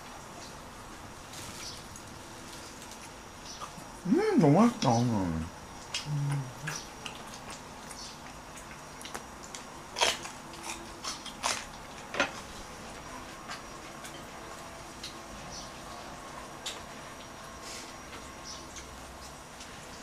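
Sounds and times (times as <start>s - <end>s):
chewing with wet smacks: 5.8s - 15.2s.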